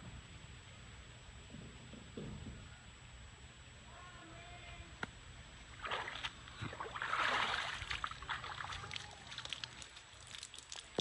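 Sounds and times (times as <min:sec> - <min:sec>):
water sloshing and splashing: 0:05.7 - 0:11.0
small clicks and ticks: 0:09.0 - 0:11.0.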